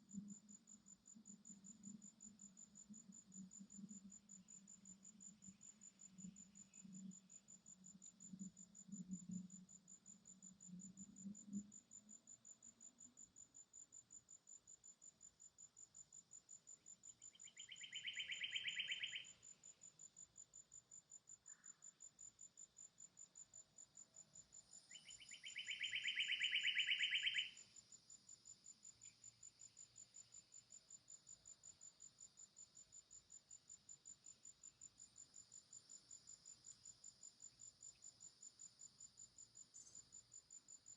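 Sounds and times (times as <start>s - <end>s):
insects trilling: 17.1s - 19.8s, 24.5s - 27.8s
buzzing insect calls: 17.4s - 19.4s.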